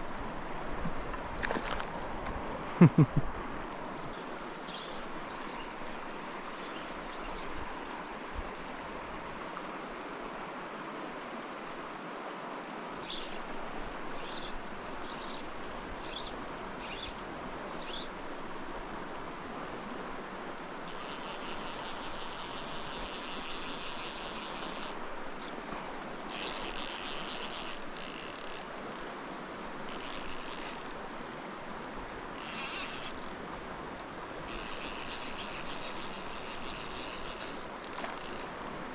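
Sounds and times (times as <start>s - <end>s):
stream rushing: 0.0s - 38.9s
fishing reel ratcheting: 4.1s - 7.9s, 14.2s - 17.2s, 20.9s - 25.5s, 26.3s - 29.1s, 29.8s - 31.0s, 32.4s - 33.4s, 34.5s - 38.7s.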